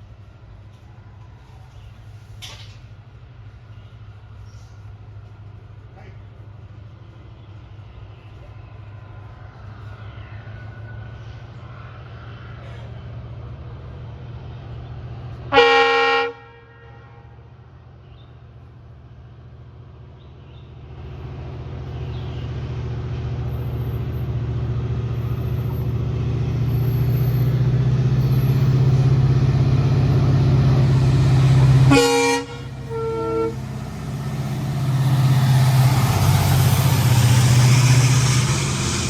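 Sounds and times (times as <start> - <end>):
locomotive engine low drone: 0.0 - 39.0
locomotive horn blast: 15.5 - 17.5, 30.7 - 34.2.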